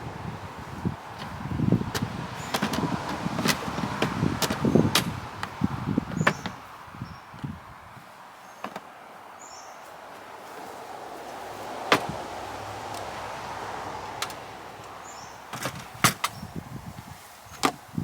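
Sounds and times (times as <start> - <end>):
knocks of things being handled: 1.2 - 6.6, 11.9 - 12.2.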